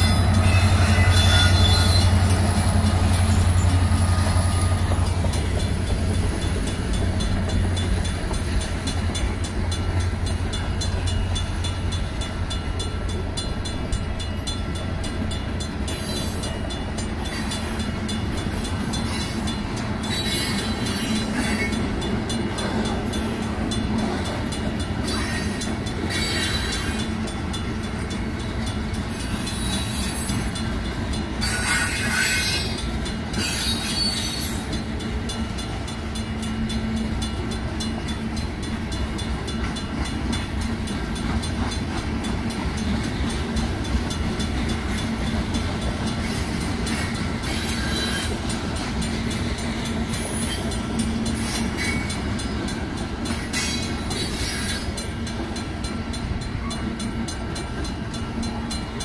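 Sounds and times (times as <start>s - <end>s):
high wheel squeal: 0.0s - 5.2s, 18.9s - 21.9s, 25.0s - 27.1s, 29.1s - 30.6s, 31.4s - 34.8s, 46.1s - 48.6s, 49.2s - 52.5s, 53.3s - 55.1s
freight train rumbling and clattering: 0.0s - 59.0s.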